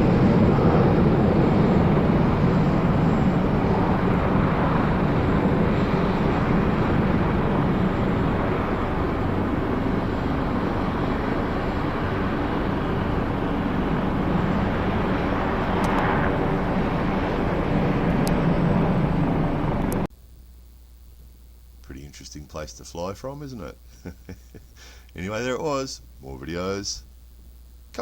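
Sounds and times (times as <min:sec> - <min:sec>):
loud jet engine noise: 0:00.0 - 0:20.1.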